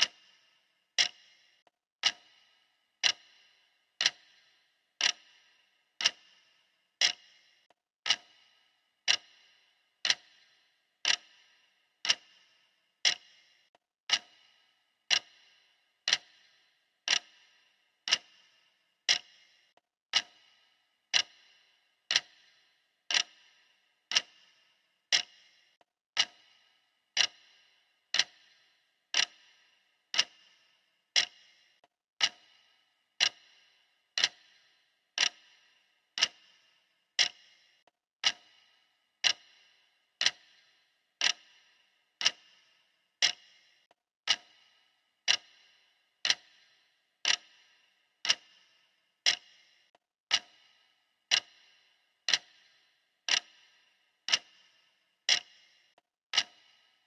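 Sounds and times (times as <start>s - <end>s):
clock ticking: 0.0s - 57.0s.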